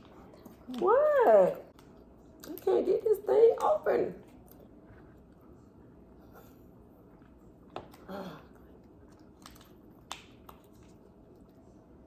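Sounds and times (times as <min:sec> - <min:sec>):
quiet chewing: 0:03.6 - 0:12.0.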